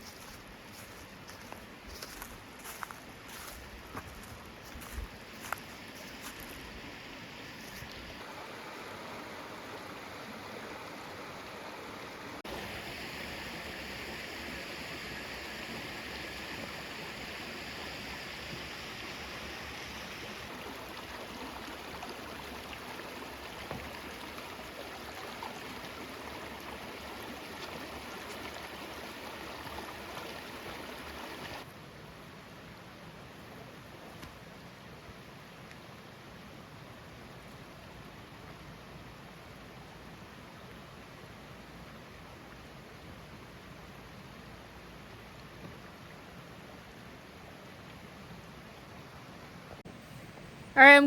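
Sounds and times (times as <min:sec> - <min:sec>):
water rushing over rocks: 0:07.9 - 0:31.7.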